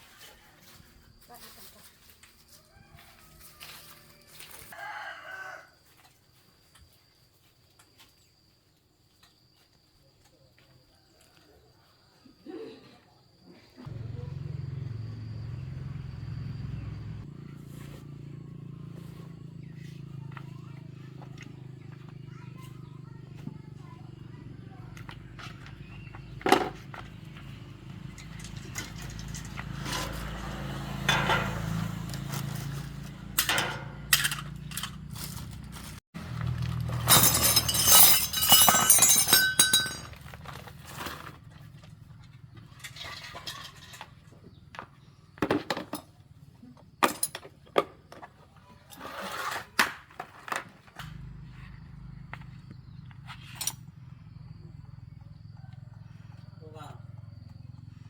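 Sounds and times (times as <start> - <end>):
hard objects clinking and knocking: 36.4 - 40.7.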